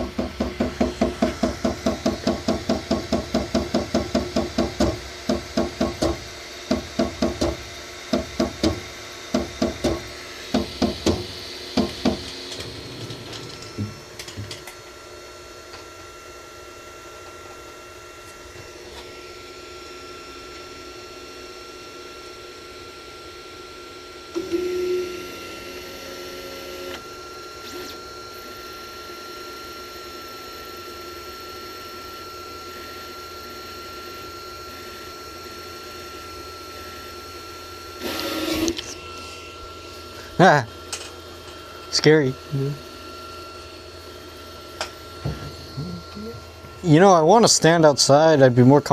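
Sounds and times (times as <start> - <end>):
printer clunking knocks: 0.0 - 7.6, 8.2 - 12.3
motor hum with thin whine: 0.0 - 48.9.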